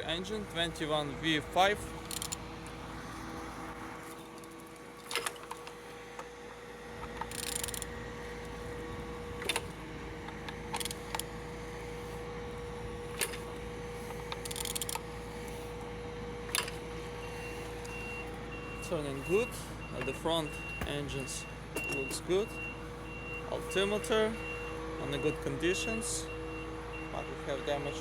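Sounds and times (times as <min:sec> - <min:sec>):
engine rattling bursts: 0:00.0 - 0:28.0
steady background hum: 0:00.0 - 0:28.0
sharp metallic clicks: 0:02.0 - 0:02.4, 0:14.2 - 0:15.0.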